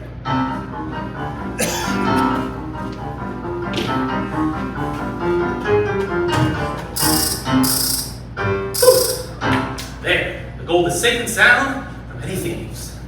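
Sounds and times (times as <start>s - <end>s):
piano playing: 0.3s - 9.8s
short rattling bursts: 7.0s - 8.2s.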